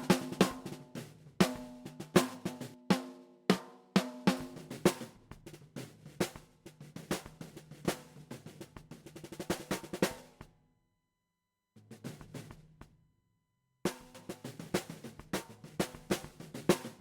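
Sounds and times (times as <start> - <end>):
drum kit playing: 0.0 - 10.3, 13.9 - 17.0.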